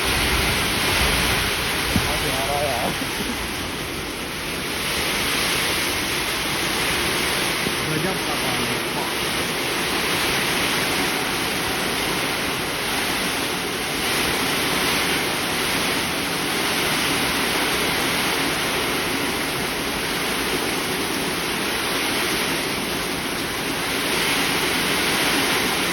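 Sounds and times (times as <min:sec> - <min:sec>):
heavy rain pouring: 0:00.0 - 0:25.9.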